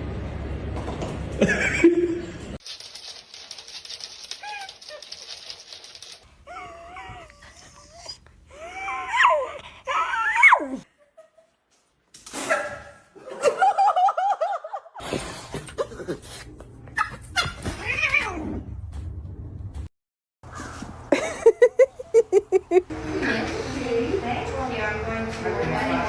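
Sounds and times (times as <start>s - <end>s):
rustling handling noise: 2.6s - 6.3s
dog whining: 4.1s - 10.8s.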